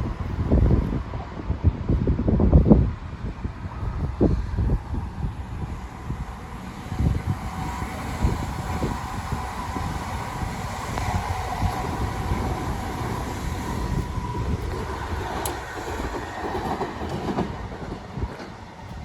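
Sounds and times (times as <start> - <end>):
rail vehicle rumbling on track: 0.0 - 19.0.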